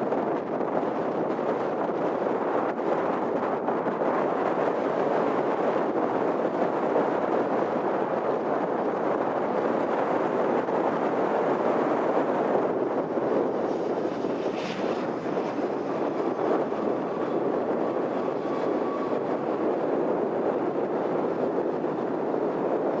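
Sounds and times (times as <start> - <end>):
jet engines rushing: 2.9 - 23.0
faint whine: 8.4 - 23.0.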